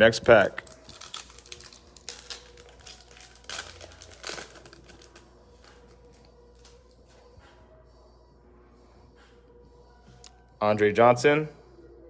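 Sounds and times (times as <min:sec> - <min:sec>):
plastic wrapper crinkling and tearing: 0:00.4 - 0:06.9.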